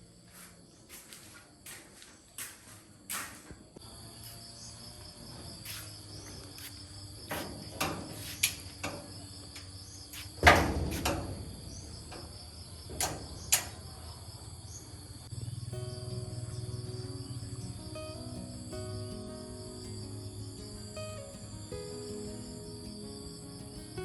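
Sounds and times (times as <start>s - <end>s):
crickets chirring: 0.0s - 24.0s
sharp knocks and clicks: 7.3s - 14.3s
loud thump: 10.4s - 13.6s.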